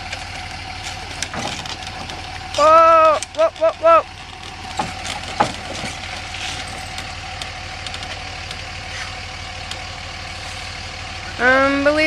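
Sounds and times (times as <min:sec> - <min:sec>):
vehicle engine idling: 0:00.0 - 0:12.0
sharp knocks: 0:04.7 - 0:06.0.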